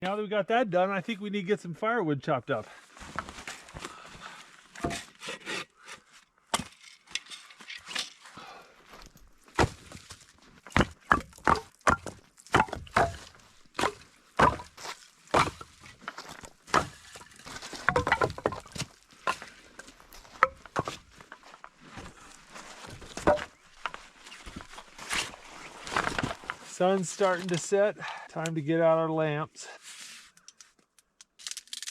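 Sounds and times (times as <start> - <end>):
firewood being chopped: 9.5 - 10.1, 10.7 - 21.1, 22.8 - 24.0.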